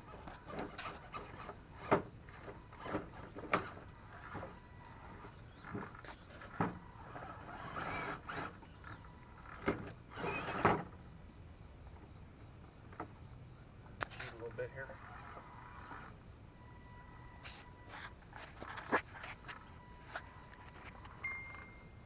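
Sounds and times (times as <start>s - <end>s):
tires and chassis knocking rocks: 0.0s - 11.1s
small electric motor whirs: 0.6s - 10.8s.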